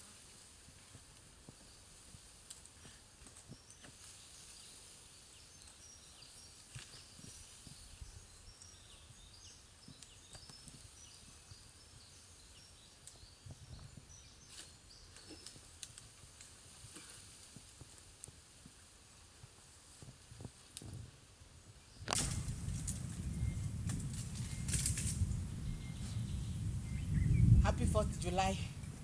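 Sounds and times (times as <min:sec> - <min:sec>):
low rumble: 0:22.2 - 0:29.0.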